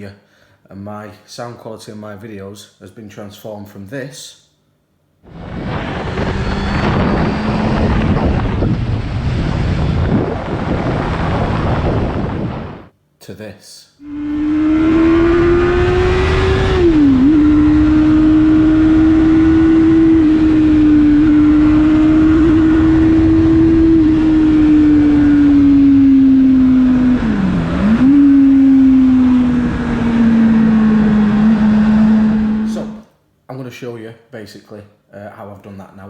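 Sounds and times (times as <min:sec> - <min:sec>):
low wind rumble: 0:05.3 - 0:12.9, 0:14.0 - 0:33.0
motorcycle engine cruising: 0:05.3 - 0:12.9, 0:14.0 - 0:33.0.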